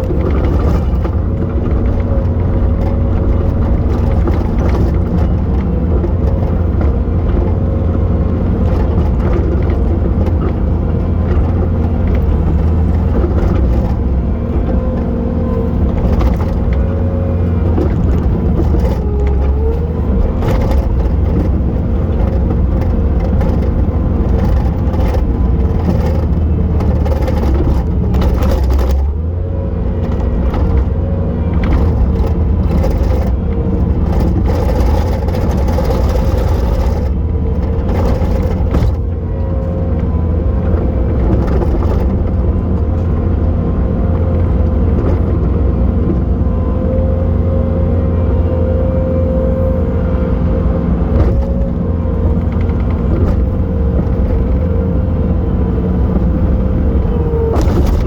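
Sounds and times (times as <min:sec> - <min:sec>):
continuous whine: 0:00.0 - 0:58.0
diesel engine running: 0:00.0 - 0:58.0
knocks and scrapes: 0:30.0 - 0:43.3, 0:57.2 - 0:58.0.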